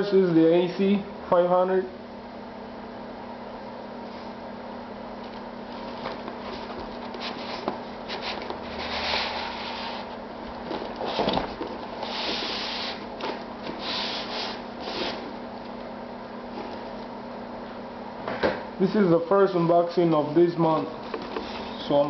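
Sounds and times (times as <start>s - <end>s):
cardboard rustling and scraping: 5.7s - 15.8s, 16.5s - 17.0s, 20.6s - 22.0s.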